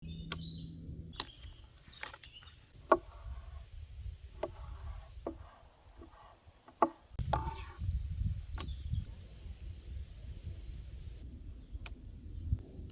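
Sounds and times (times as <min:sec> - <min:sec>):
low rumble: 0:00.0 - 0:02.0, 0:07.2 - 0:12.9.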